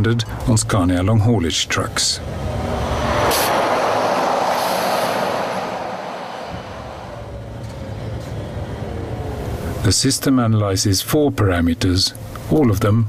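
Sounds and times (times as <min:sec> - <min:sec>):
truck tyre and road noise: 0:00.0 - 0:10.0
low engine rumble: 0:02.0 - 0:10.0.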